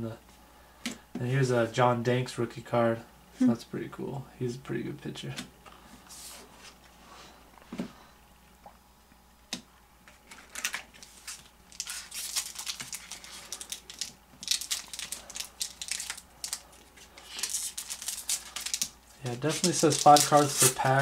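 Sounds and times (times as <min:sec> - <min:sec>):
wrapper crinkling and rustling: 0:10.1 - 0:21.0.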